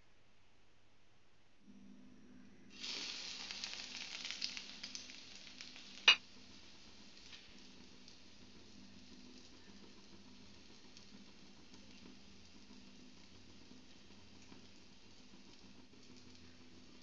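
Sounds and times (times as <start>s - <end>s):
bread sizzling in hot oil: 2.7s - 17.0s.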